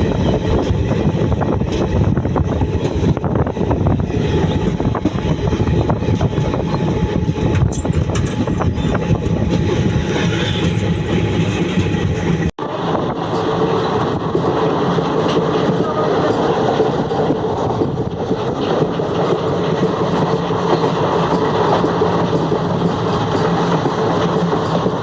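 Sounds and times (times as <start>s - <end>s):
train rumbling on track: 0.0s - 25.0s
wheels clicking over rails: 0.1s - 25.0s
high wheel squeals: 7.7s - 9.2s, 10.2s - 11.3s.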